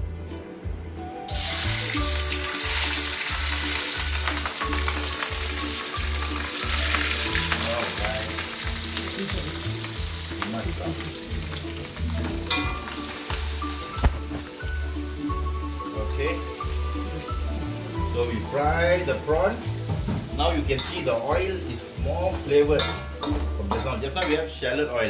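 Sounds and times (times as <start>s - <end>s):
background music with steady beat: 0.0s - 25.0s
prawns sizzling in hot oil: 1.3s - 24.7s.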